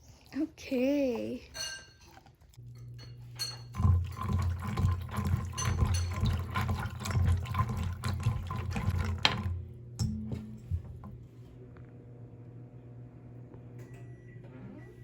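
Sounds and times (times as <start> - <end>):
liquid pouring into container: 3.5 - 9.7.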